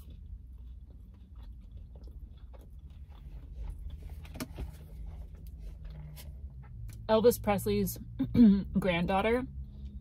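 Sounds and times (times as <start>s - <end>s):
chewing mouth sounds: 0.0s - 6.8s
low hum: 0.0s - 10.0s.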